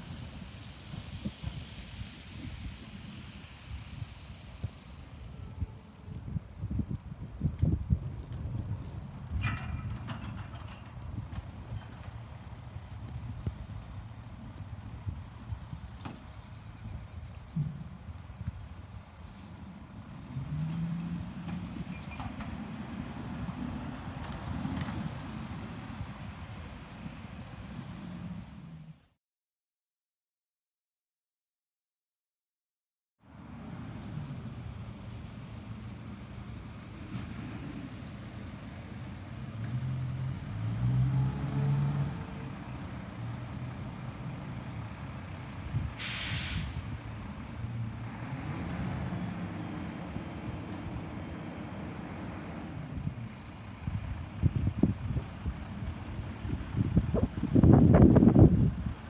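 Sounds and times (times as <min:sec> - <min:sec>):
faint clanks: 0:09.4 - 0:12.0
diesel truck engine revving: 0:39.3 - 0:53.4
air brakes hiss: 0:45.8 - 0:47.0.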